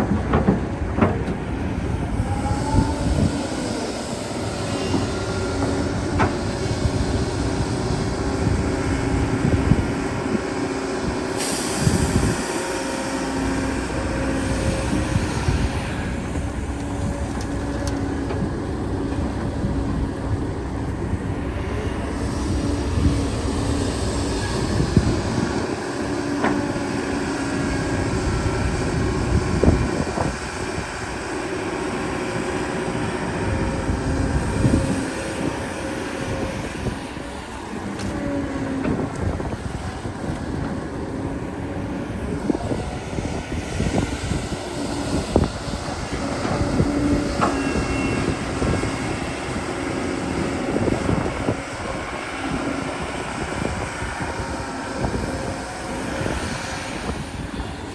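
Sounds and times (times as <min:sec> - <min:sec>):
machine clanks and knocks: 0:00.0 - 0:01.7
excavator diesel engine running: 0:00.0 - 0:57.9.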